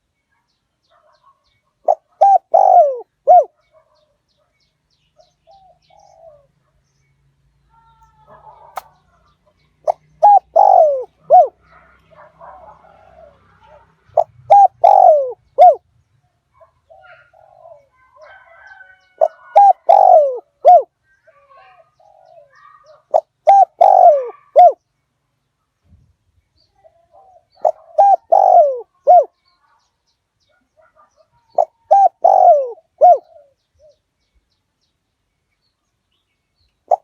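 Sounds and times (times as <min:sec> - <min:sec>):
dove cooing: 0:01.8 - 0:03.6, 0:05.4 - 0:06.5, 0:08.2 - 0:15.8, 0:16.9 - 0:24.8, 0:26.8 - 0:29.4, 0:30.8 - 0:34.0.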